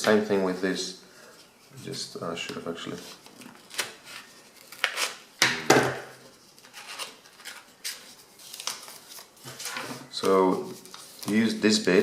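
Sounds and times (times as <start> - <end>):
paper being folded: 6.4 - 12.0.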